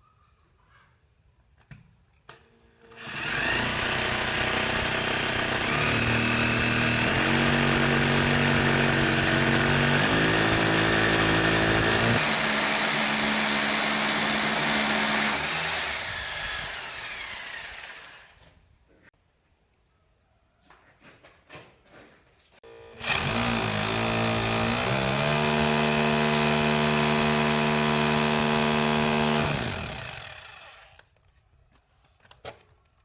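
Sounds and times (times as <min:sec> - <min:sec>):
electric drill drilling: 0:02.9 - 0:18.4, 0:22.9 - 0:31.0.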